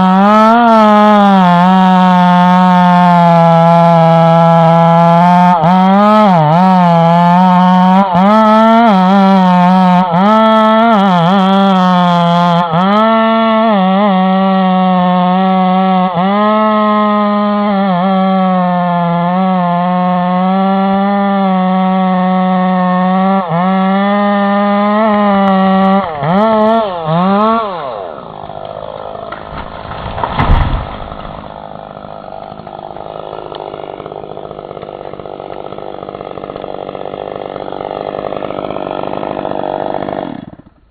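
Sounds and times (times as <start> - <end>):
chainsaw running at full throttle: 0.0 - 40.9
loud thump: 29.3 - 31.6.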